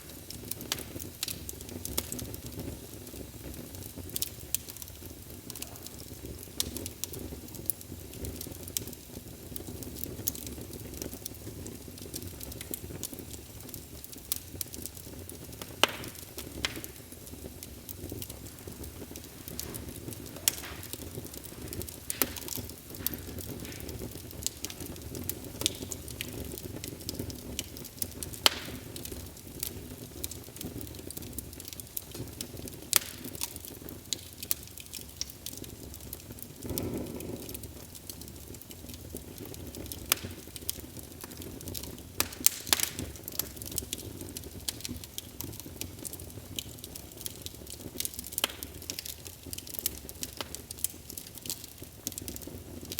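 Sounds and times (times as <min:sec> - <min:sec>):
fire crackling and popping: 0:00.0 - 0:52.9
rush of flames: 0:14.2 - 0:30.3.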